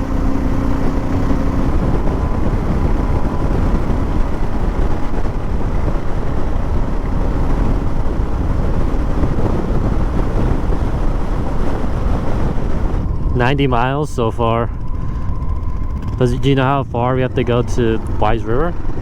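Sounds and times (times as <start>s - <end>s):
motorcycle engine: 0.0s - 19.0s
wind buffeting microphone: 0.0s - 19.0s.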